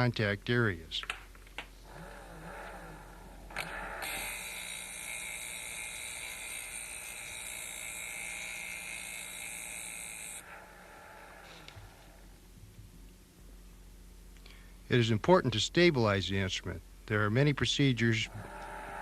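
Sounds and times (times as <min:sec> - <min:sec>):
machine hum: 0:00.0 - 0:19.0
high grinding hiss: 0:03.0 - 0:11.8.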